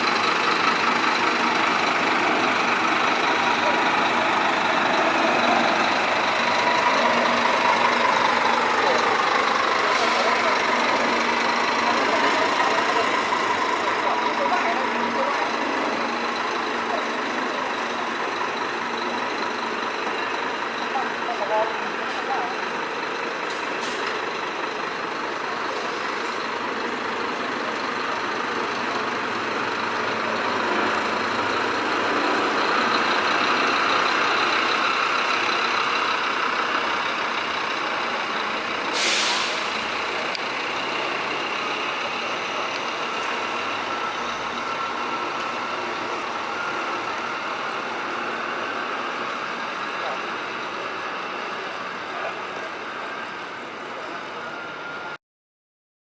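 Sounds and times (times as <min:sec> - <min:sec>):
coach diesel engine running: 0:00.0 - 0:55.2
air brake hiss: 0:38.8 - 0:39.9.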